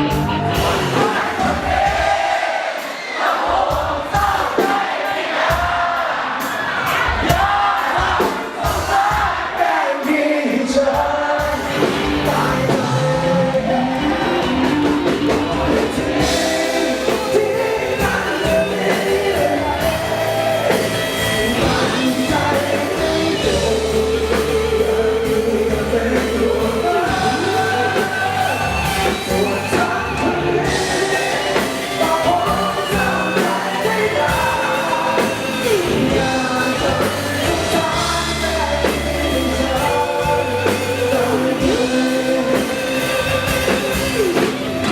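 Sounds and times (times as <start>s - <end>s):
overdriven electric guitar: 0.0s - 2.1s, 11.4s - 44.9s
bass guitar: 0.0s - 2.2s, 11.0s - 44.9s
drums: 0.0s - 44.9s
man singing: 0.4s - 2.2s, 7.2s - 44.9s.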